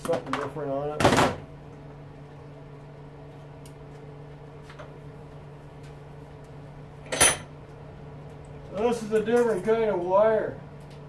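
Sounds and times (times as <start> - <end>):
low steady hum: 0.0 - 11.0
tools and parts handled at workbench: 7.0 - 7.5.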